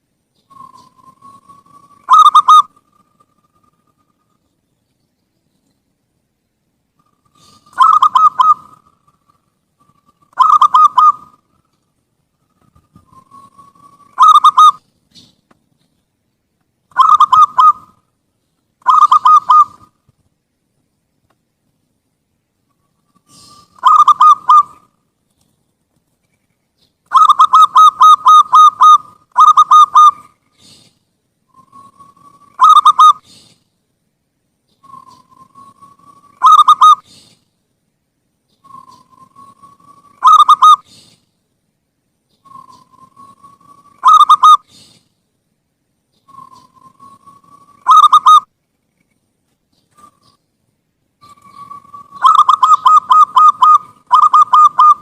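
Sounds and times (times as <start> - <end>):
dove cooing: 0.5 - 3.7, 7.0 - 11.4, 12.6 - 15.3, 16.9 - 18.0, 18.8 - 20.0, 23.1 - 24.9, 27.1 - 30.8, 31.6 - 33.5, 34.8 - 37.3, 38.6 - 41.2, 42.4 - 45.0, 46.3 - 48.5, 51.2 - 55.0.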